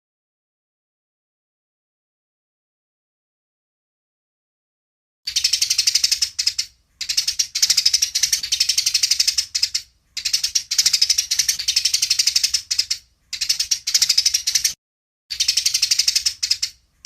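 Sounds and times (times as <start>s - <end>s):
sparrows chattering chirps: 5.3s - 17.0s.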